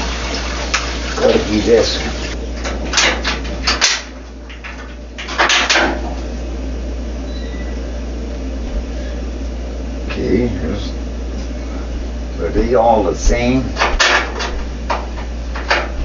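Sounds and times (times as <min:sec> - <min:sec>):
steady low hum: 0:00.0 - 0:16.0
hardware knocking and rattling: 0:13.7 - 0:16.0.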